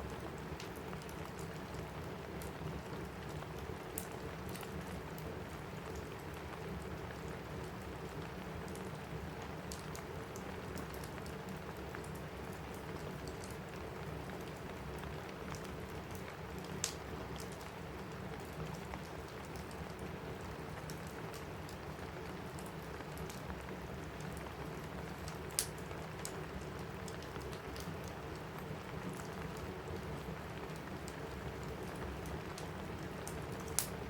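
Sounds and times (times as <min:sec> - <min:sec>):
steady rain: 0:00.0 - 0:34.0
wood fire crackling: 0:00.0 - 0:34.0.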